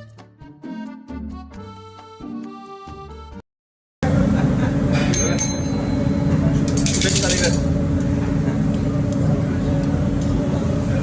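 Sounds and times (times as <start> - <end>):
instrumental music: 0.0 - 3.4
loud steady low rumble: 4.0 - 11.0.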